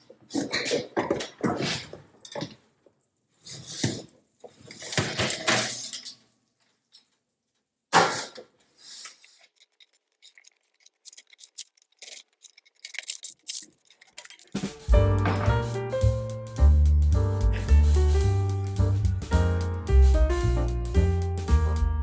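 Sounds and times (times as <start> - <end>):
small clicks: 9.0 - 14.8
sharp knock: 14.6 - 16.7.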